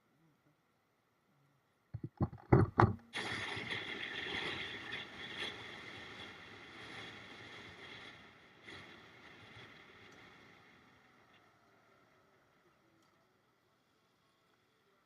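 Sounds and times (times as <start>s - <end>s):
steady rushing noise: 3.2s - 11.4s.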